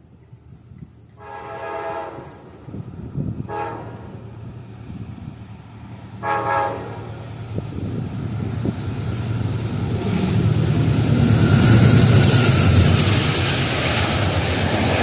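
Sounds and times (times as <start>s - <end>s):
rail noise: 0.0s - 15.0s
train engine rumble: 0.0s - 15.0s
train horn blast: 1.2s - 2.4s, 3.4s - 4.2s, 6.2s - 7.1s.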